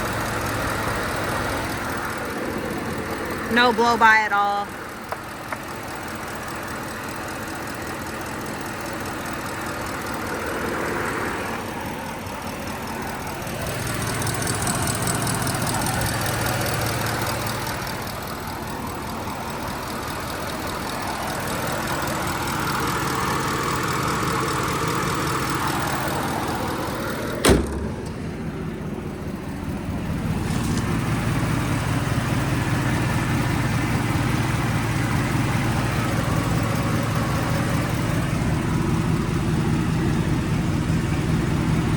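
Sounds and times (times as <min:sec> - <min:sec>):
engine idling: 0:00.0 - 0:41.9
door slamming shut: 0:27.4 - 0:28.2.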